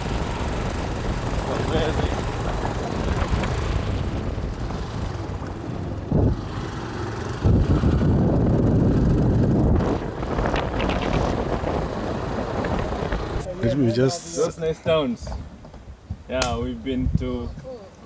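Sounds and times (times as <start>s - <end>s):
motorbike engine on dirt trail: 0.0s - 13.5s
wind buffeting microphone: 0.0s - 17.9s.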